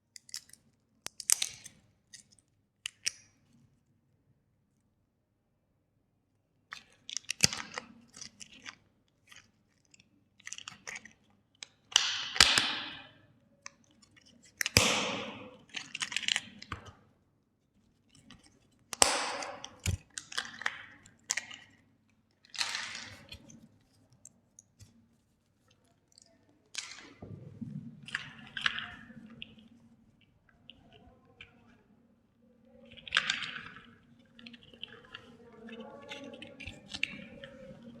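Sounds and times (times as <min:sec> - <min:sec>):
plastic cracking and crunching: 0:22.4 - 0:23.6, 0:32.9 - 0:38.0.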